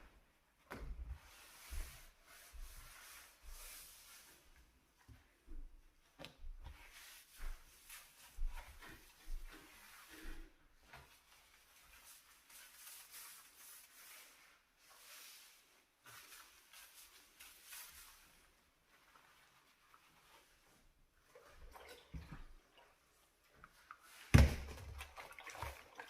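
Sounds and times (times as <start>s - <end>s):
hand scrubbing a stovetop: 1.1s - 5.5s, 6.6s - 24.3s.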